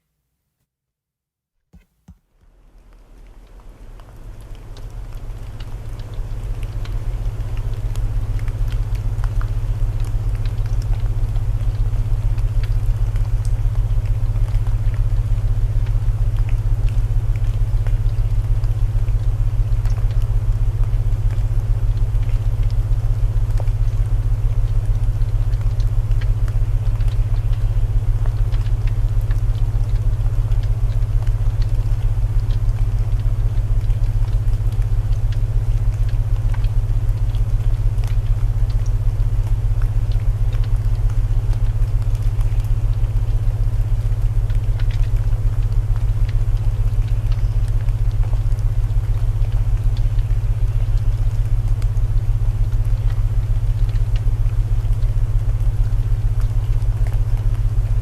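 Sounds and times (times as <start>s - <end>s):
rain hiss: 2.8s - 58.0s.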